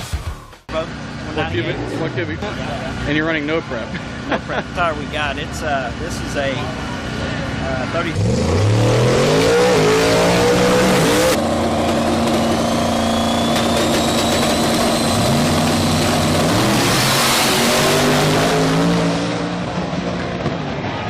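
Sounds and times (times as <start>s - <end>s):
car engine revving: 0.7s - 20.7s
high whine rising in pitch: 9.3s - 19.5s.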